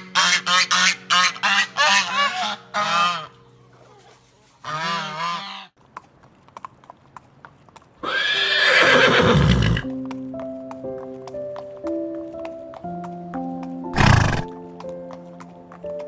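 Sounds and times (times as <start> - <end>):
horse whinnying: 8.0 - 9.9, 14.0 - 14.5.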